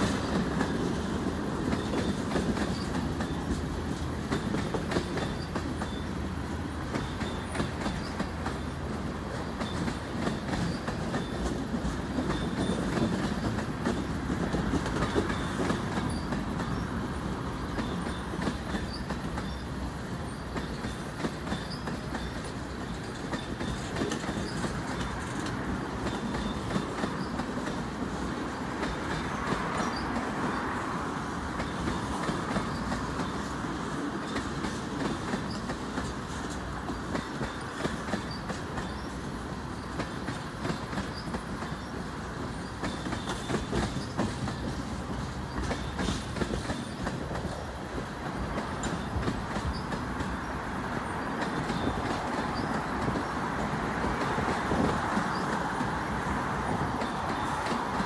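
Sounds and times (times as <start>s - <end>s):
freight train rolling past: 0.0s - 58.0s
steel wheels clicking over rail: 17.6s - 58.0s.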